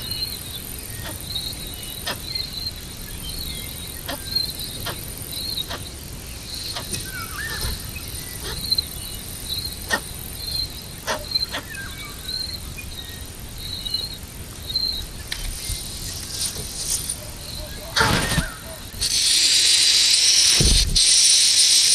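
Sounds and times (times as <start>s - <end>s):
high-pitched insect whine: 0.0s - 21.9s
insects chirping: 0.0s - 21.9s.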